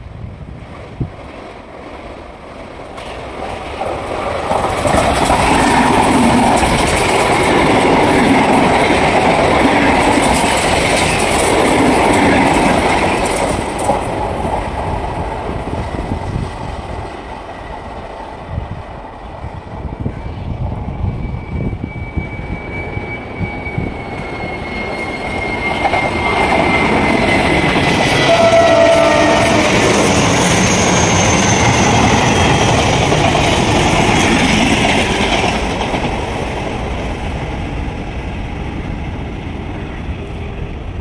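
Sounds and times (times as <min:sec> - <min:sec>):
trains running past: 0:00.0 - 0:41.0
thin high whine: 0:20.0 - 0:32.5.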